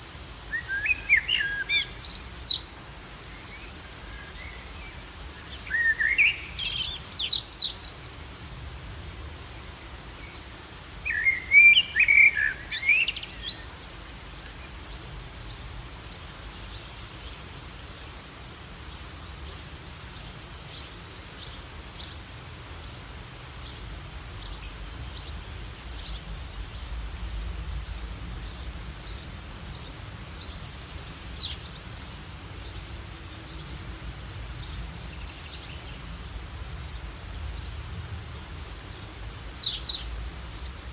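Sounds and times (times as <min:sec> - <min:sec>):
steady background noise: 0:00.0 - 0:40.9
bird chirps: 0:00.5 - 0:03.1, 0:05.5 - 0:08.0, 0:11.1 - 0:13.8, 0:39.1 - 0:40.2.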